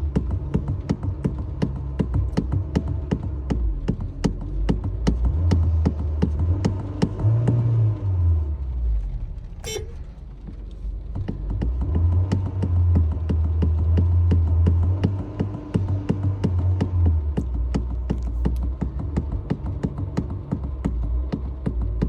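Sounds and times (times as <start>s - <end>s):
car engine revving: 0.0s - 22.0s
car horn toot: 9.6s - 10.2s.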